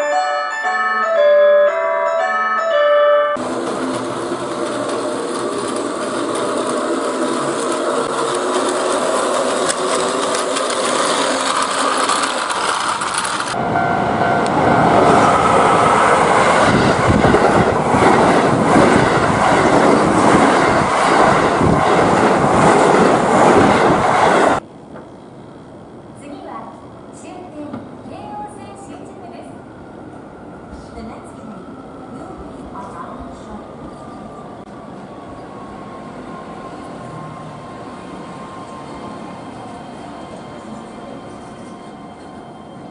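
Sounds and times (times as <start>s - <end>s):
train wheels clattering on rails: 3.4s - 13.6s.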